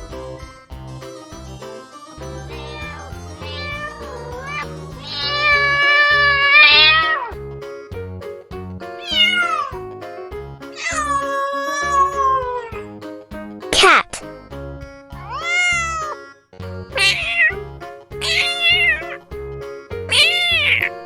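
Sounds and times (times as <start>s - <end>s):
upbeat background music: 0.0s - 21.0s
cat meowing: 2.4s - 7.3s, 9.0s - 9.8s, 10.8s - 12.8s, 15.2s - 16.2s, 17.0s - 17.6s, 18.2s - 19.2s, 20.1s - 21.0s.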